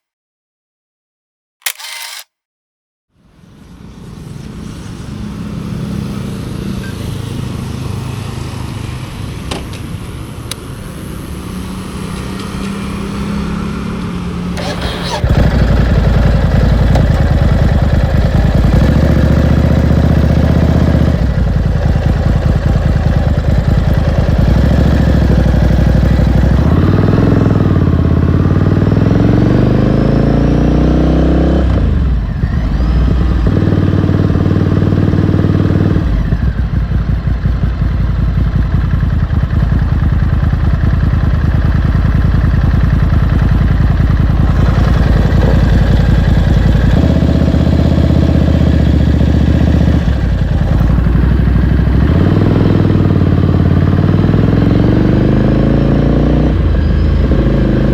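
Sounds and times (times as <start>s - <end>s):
motorcycle engine running: 14.0s - 57.9s.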